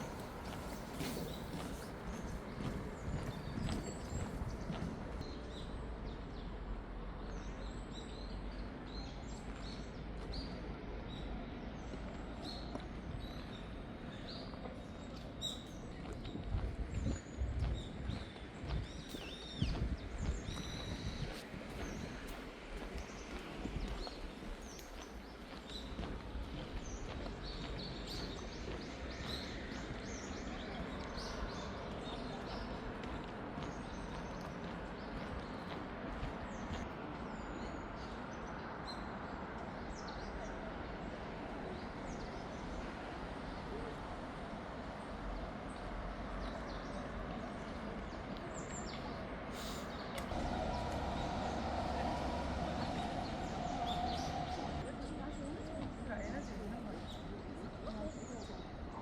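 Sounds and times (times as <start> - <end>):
small birds chirping: 0.0 - 6.6, 7.2 - 43.9.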